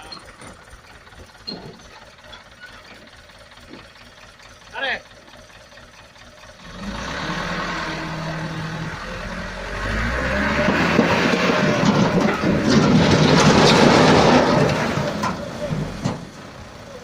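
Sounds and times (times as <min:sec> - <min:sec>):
rattling and clatter: 0:00.0 - 0:06.6, 0:10.2 - 0:16.6
diesel truck engine revving: 0:06.5 - 0:17.0.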